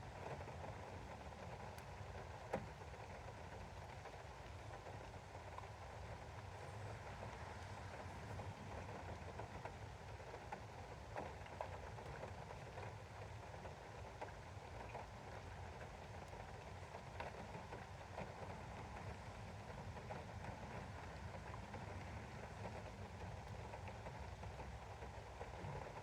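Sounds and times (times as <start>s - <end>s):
steady rain: 0.0s - 26.0s
raindrops ticking on window: 0.1s - 26.0s.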